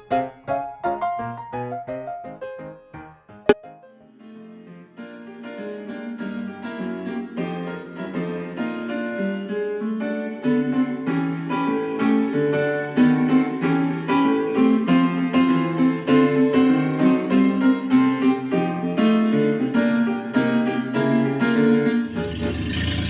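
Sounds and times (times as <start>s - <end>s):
ragtime piano music: 0.1s - 3.6s, 5.2s - 23.0s.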